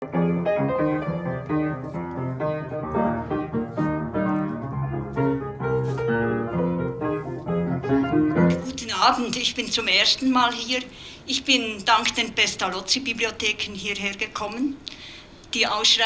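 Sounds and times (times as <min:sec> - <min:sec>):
solo piano piece: 0:00.0 - 0:09.4.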